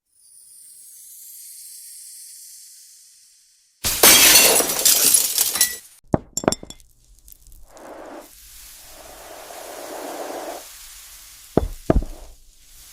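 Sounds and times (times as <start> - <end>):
glass shattering: 3.8 - 7.6
sharp glass clink: 3.9 - 6.8
faint high hiss: 6.9 - 12.9.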